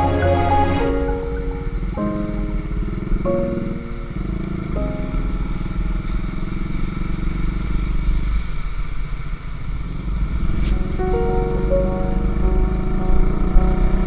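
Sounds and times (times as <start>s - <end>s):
music: 0.0s - 5.6s, 10.6s - 14.0s
motorcycle engine rumbling: 0.0s - 14.0s.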